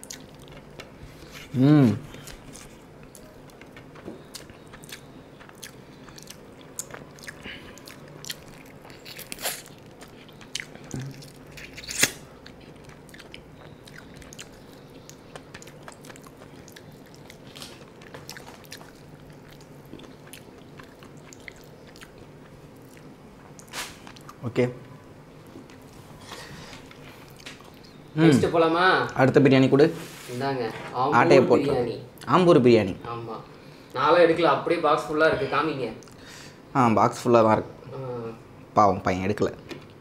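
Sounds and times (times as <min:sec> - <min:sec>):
person chewing: 0:00.0 - 0:24.4.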